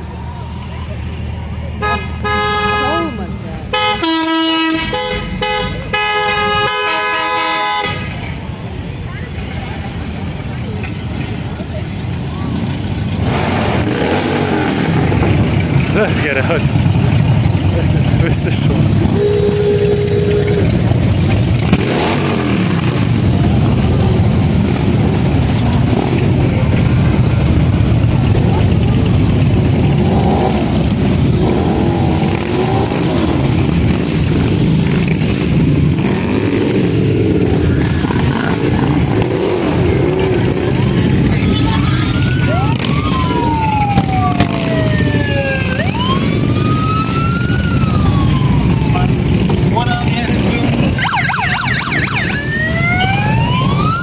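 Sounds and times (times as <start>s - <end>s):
car engine revving: 13.2s - 51.6s
vehicle siren wailing: 41.0s - 54.0s.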